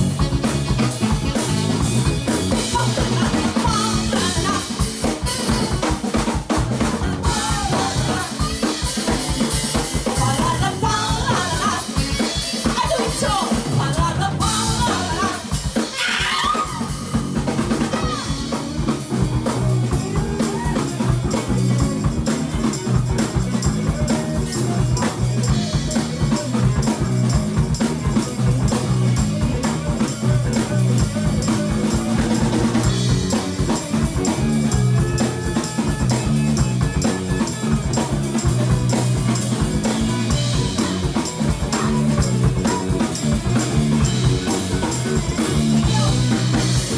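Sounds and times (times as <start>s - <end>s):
band melody line: 0.0s - 46.9s
bass line: 0.0s - 46.9s
drum kit beat: 0.0s - 46.9s.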